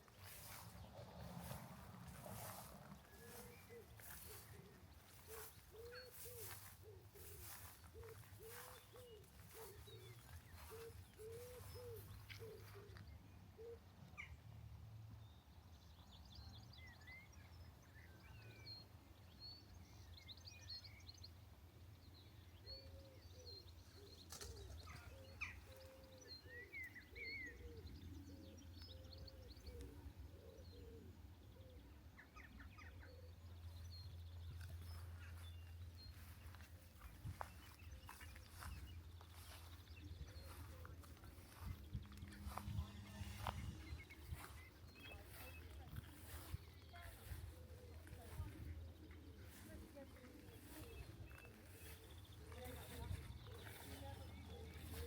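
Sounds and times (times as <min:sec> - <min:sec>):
small birds chirping: 0:00.0 - 0:14.4, 0:15.2 - 0:55.0
lower repeated bird call: 0:02.4 - 0:13.0.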